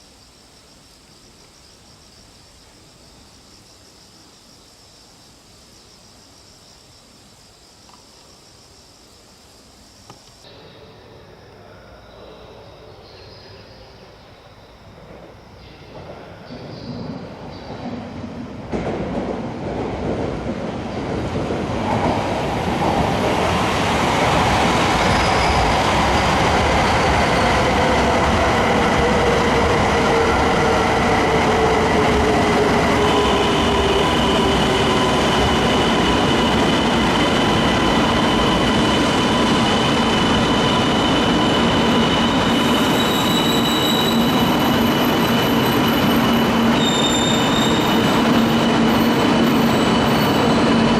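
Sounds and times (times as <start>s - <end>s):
high-speed train passing: 10.4s - 50.9s.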